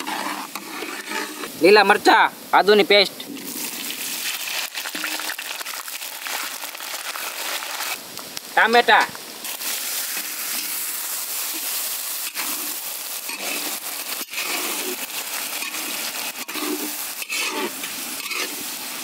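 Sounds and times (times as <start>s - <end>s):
metal spatula stirring: 0.0s - 1.6s, 11.5s - 18.7s
tomatoes sizzling in hot oil: 0.0s - 19.0s.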